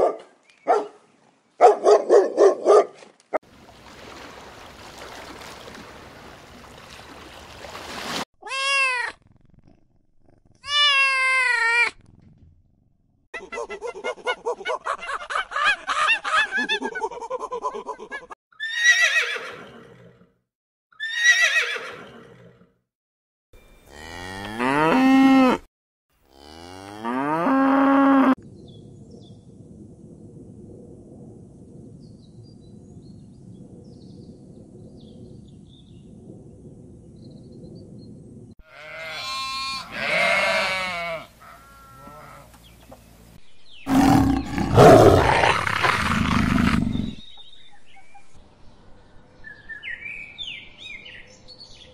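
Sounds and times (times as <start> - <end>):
goat bleating: 38.7 - 42.5.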